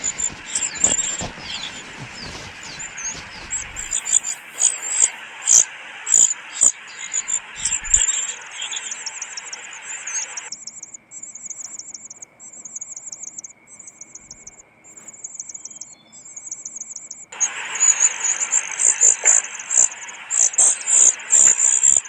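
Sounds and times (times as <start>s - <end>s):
hiss: 0.0s - 8.5s, 17.4s - 22.0s
high-pitched chirping: 0.0s - 14.5s
faint steady whine: 0.0s - 22.0s.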